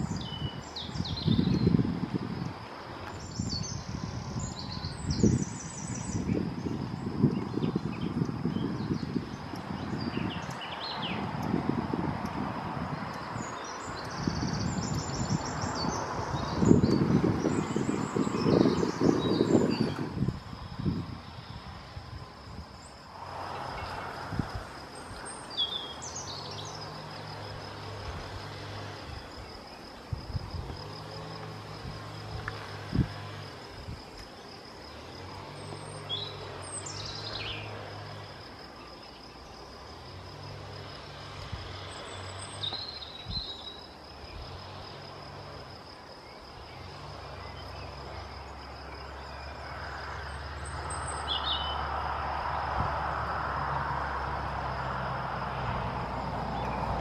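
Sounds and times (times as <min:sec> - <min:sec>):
bird calls: 0:25.0 - 0:27.0.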